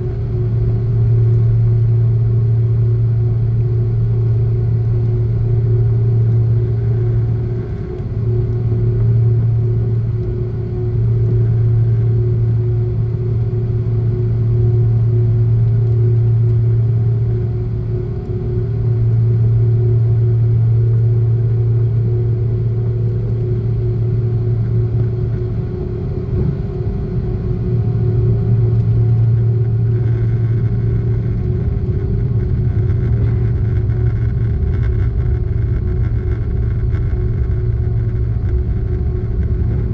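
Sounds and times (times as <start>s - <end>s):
jet engines humming in cabin: 0.0s - 39.9s.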